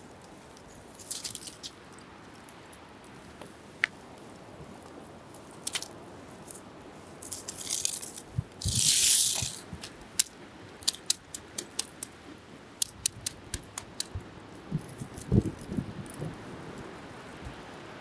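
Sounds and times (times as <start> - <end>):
fire hissing: 7.3 - 9.8
bonfire crackling and popping: 7.3 - 12.2, 12.8 - 14.2.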